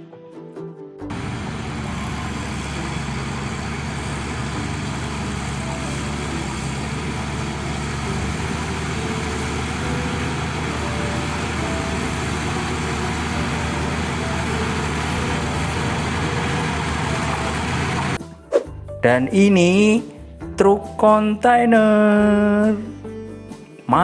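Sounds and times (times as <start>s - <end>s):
vehicle engine running: 1.1s - 18.2s.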